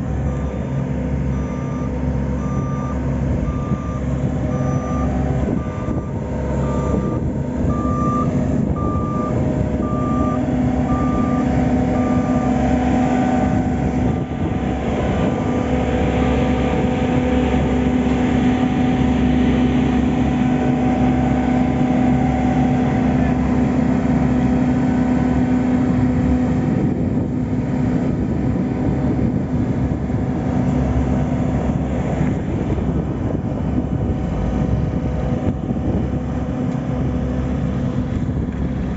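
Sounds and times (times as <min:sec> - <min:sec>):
heavy vehicle engine running: 0:00.0 - 0:38.9
reversing alarm beeping: 0:00.2 - 0:13.8.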